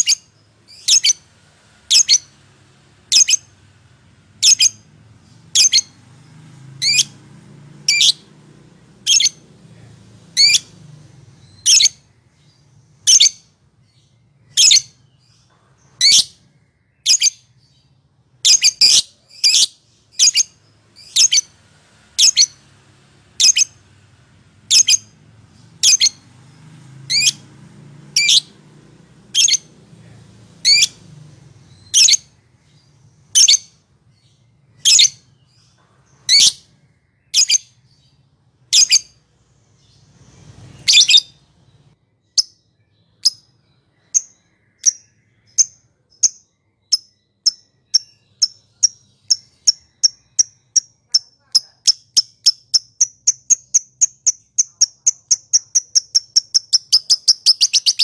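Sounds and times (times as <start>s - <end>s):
lovebird chirping: 0.0s - 3.7s, 4.3s - 9.5s, 10.3s - 29.8s, 30.6s - 58.0s.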